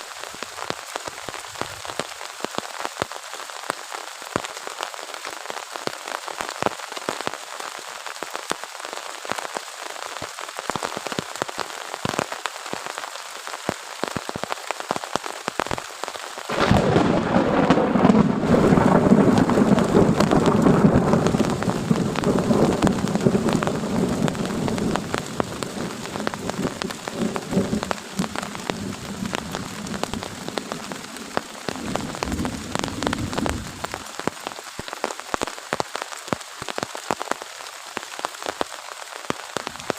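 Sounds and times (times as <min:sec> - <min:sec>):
heavy rain pattering: 0:00.0 - 0:39.9
thunder rumbling: 0:16.5 - 0:34.2.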